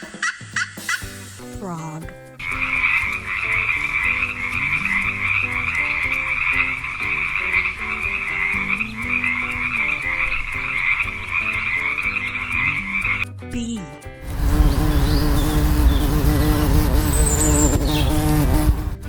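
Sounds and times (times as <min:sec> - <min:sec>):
frogs croaking: 0:02.4 - 0:13.2.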